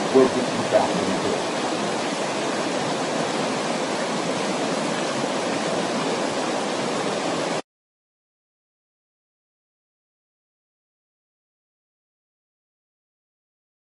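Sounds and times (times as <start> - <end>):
steady rushing noise: 0.0 - 7.6.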